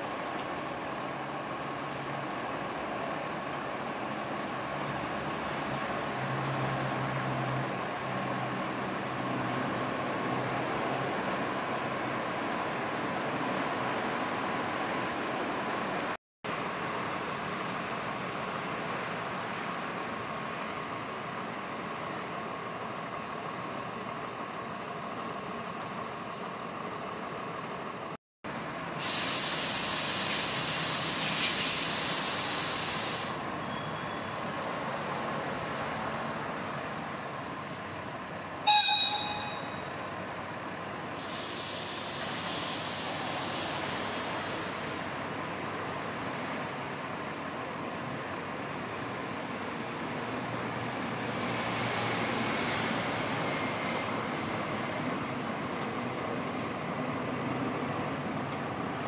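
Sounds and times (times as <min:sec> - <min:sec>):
hiss: 0:28.9 - 0:33.5, 0:41.1 - 0:45.0
loud ringing high tones: 0:38.7 - 0:40.3.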